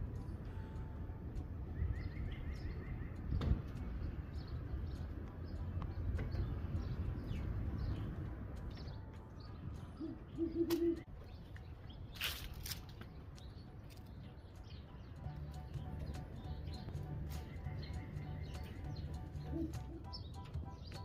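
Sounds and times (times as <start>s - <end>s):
small birds chirping: 0.0s - 21.0s
owl hooting: 10.0s - 11.1s, 19.4s - 20.1s.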